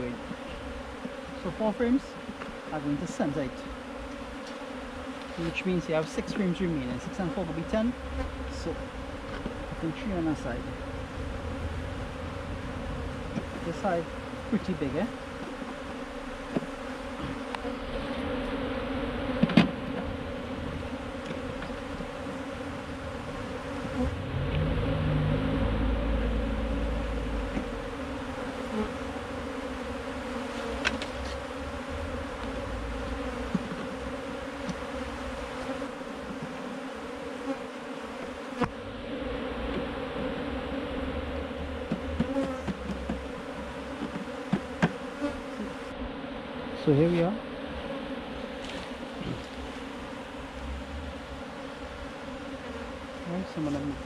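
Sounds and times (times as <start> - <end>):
bees buzzing: 0.0 - 54.0
low rumble: 7.9 - 14.6, 22.7 - 28.4.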